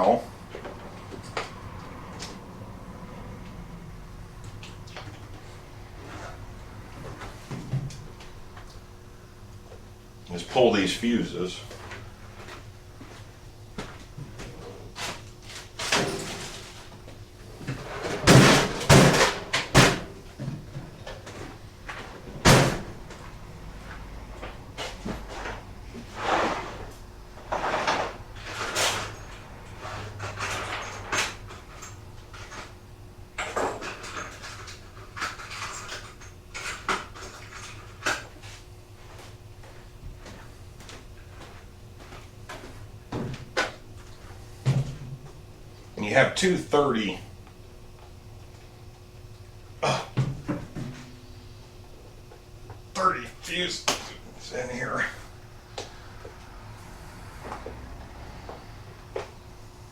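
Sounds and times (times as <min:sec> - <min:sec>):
knocks and clatters of parts: 0:15.0 - 0:23.2, 0:27.5 - 0:32.8, 0:33.4 - 0:38.4.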